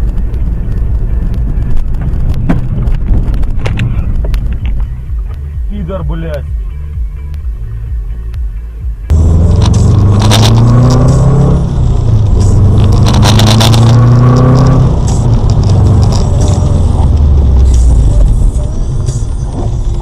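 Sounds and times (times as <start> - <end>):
scraping and rattling noises: 1.7 - 5.5, 12.4 - 20.0
car engine accelerating hard: 9.1 - 20.0.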